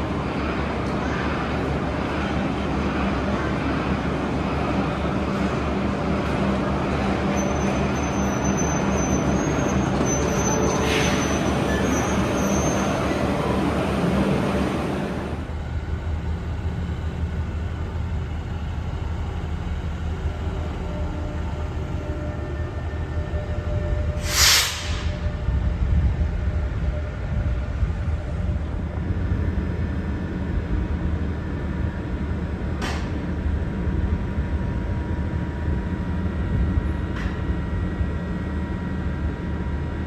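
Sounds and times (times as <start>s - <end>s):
train rumbling: 0.0s - 40.0s
high squeal: 7.3s - 14.1s, 24.2s - 25.4s.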